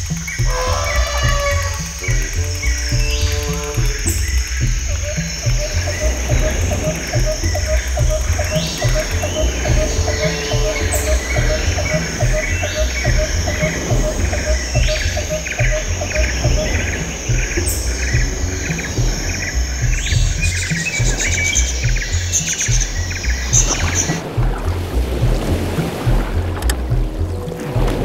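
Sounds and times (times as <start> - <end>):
bird chirps: 0.0 - 24.3
insect sounds: 0.0 - 28.0
music with pulsing bass: 0.0 - 28.0
regular ticking: 0.0 - 28.0.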